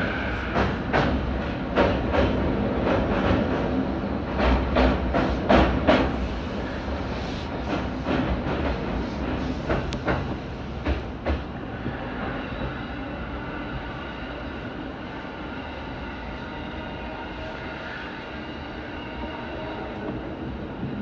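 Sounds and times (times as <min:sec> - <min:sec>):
electric train rumbling: 0:00.0 - 0:21.0
train wheels clicking over rail joints: 0:07.7 - 0:11.5.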